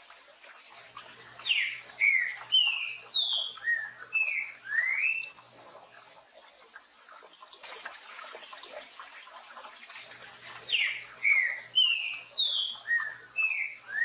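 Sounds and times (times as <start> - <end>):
faint hiss of rain: 0.0 - 14.0
bird singing whistled notes: 1.4 - 5.4, 10.7 - 14.0.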